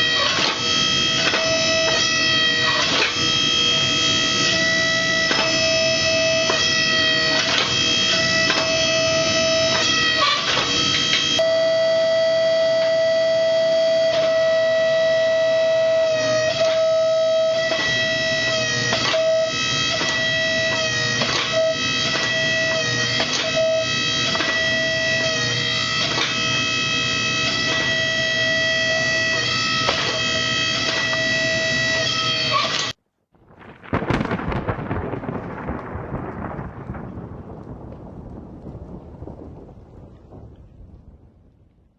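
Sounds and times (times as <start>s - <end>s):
rumbling noise: 0.0s - 11.6s, 33.3s - 41.9s
bagpipe-like drone music: 0.0s - 33.0s.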